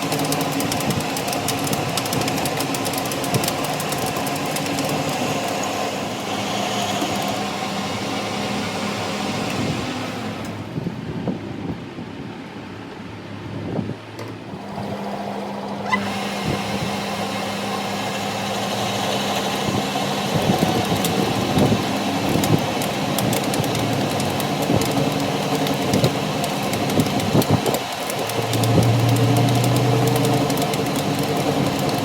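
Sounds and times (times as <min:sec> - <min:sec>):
machine humming: 0:14.6 - 0:32.0.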